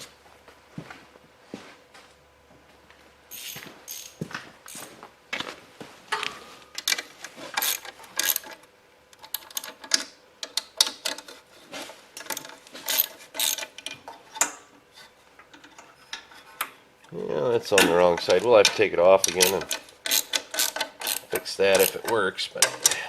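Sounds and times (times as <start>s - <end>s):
light ratcheting: 12.2s - 14.6s, 17.8s - 23.0s
metallic clicks of hand tools: 17.8s - 23.0s.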